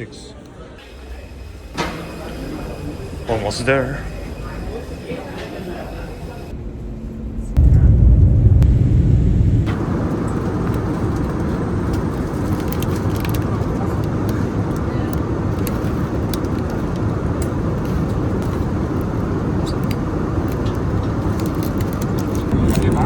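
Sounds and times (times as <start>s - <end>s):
airliner engines roaring in cabin: 0.0s - 23.0s
rushing air: 7.6s - 22.6s.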